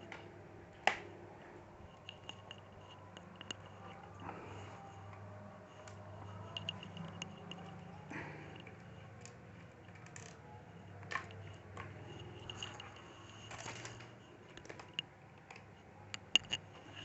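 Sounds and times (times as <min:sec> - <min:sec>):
screwdriver clicks and taps: 0:05.8 - 0:07.7, 0:14.5 - 0:17.0.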